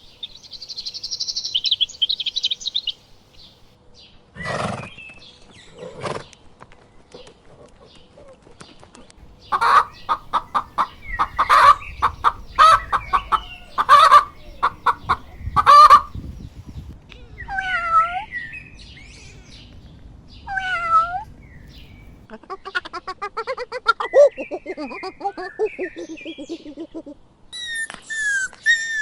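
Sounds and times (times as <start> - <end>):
chickens clucking and squawking: 9.2 - 17.0.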